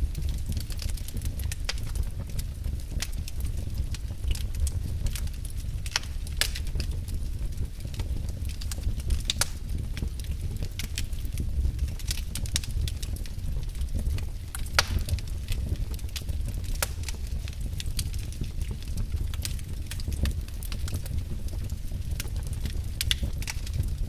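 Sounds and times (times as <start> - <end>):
fireplace fire crackling and popping: 0.0 - 24.0
low rumble of flame: 0.0 - 24.0.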